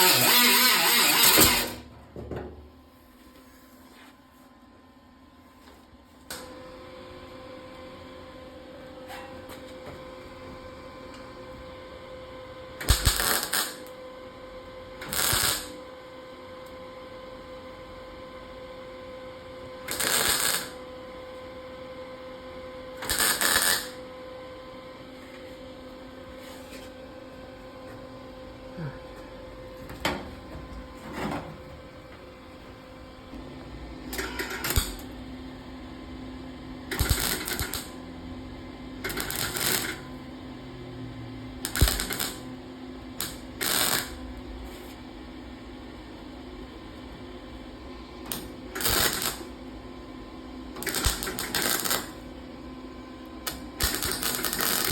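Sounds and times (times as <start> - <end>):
welder arc crackling: 0.0 - 1.8, 12.8 - 14.0, 15.0 - 15.8, 19.9 - 20.8, 23.0 - 24.0, 34.1 - 35.2, 36.9 - 38.0, 39.1 - 40.0, 41.6 - 42.5, 43.2 - 44.2, 48.3 - 49.6, 50.8 - 52.3, 53.4 - 54.9.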